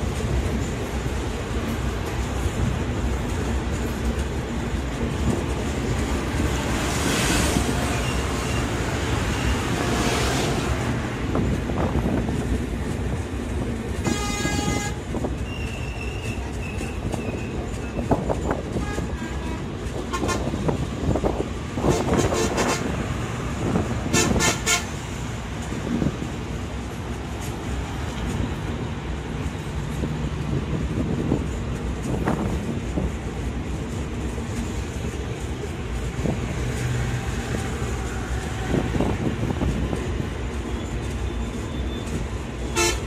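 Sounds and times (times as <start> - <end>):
train wheels rushing on rail: 0.0 - 43.0
train horn: 14.0 - 15.1, 18.7 - 20.6, 21.8 - 23.0, 24.0 - 25.0, 42.7 - 43.0.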